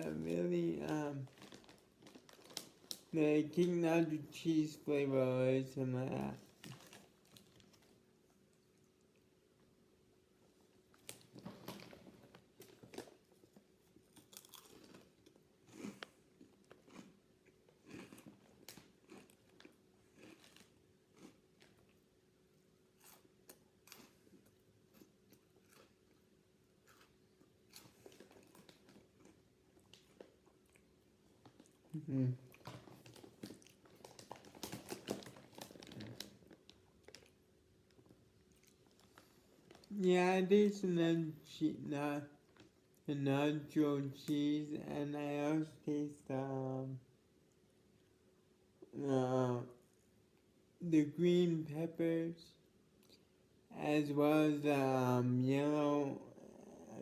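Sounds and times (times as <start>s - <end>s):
crackers being chewed crunchily: 0.0s - 3.7s, 6.0s - 9.8s, 10.5s - 40.0s, 42.4s - 43.1s
snack bag crinkling: 0.0s - 4.5s, 6.0s - 9.2s, 10.8s - 22.1s, 22.9s - 39.9s.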